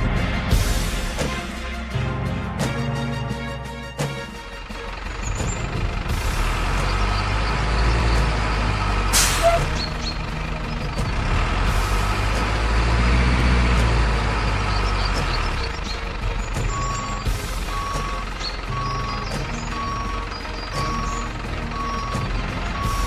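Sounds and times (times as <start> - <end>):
diesel truck engine sound: 0.0 - 23.0
air brake hiss: 9.1 - 9.8.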